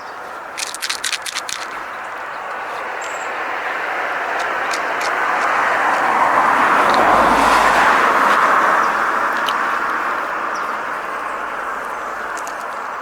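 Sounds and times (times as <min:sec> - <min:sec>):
car driving past: 0:03.4 - 0:09.4.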